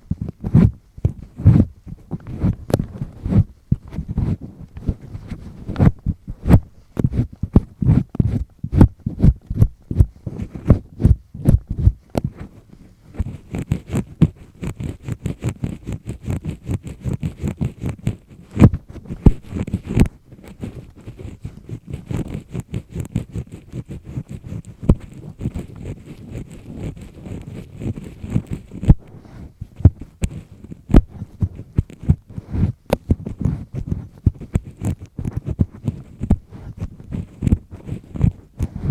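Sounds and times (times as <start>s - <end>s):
soft low thumps: 0.0s - 12.4s, 18.6s - 20.2s, 30.9s - 34.6s
earpick scraping inside ear: 0.0s - 38.9s.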